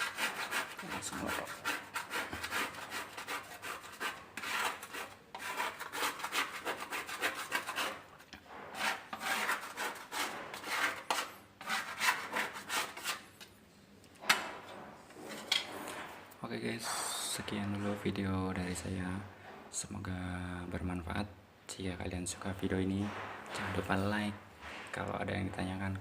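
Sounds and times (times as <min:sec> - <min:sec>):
paint scraper scraping wall: 0:00.0 - 0:13.4, 0:22.4 - 0:25.7.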